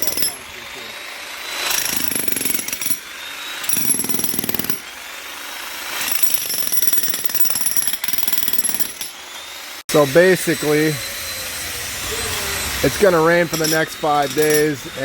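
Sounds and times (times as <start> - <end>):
power hammer rapid blows: 1.4 - 9.2.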